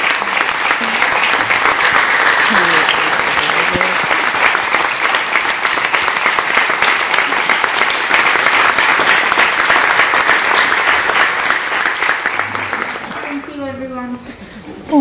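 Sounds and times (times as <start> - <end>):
audience applauding: 0.0 - 13.6.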